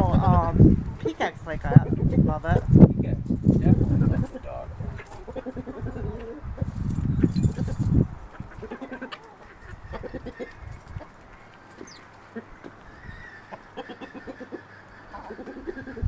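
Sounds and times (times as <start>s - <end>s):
chickens clucking: 3.7s - 16.0s.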